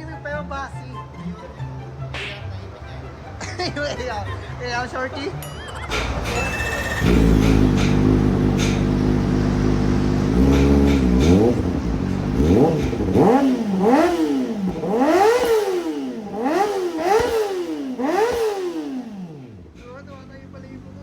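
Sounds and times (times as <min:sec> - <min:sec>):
motorcycle engine revving: 0:05.9 - 0:21.0.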